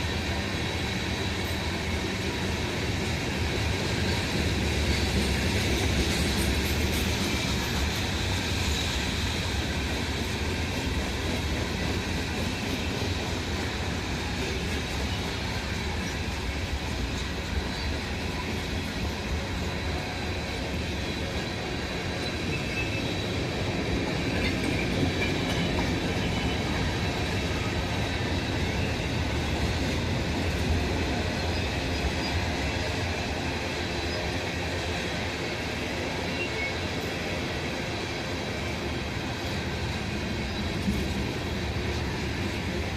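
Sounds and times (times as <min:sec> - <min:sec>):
freight train cars rolling: 0:00.0 - 0:42.9
faint high wheel squeal: 0:21.3 - 0:23.5, 0:36.0 - 0:37.2.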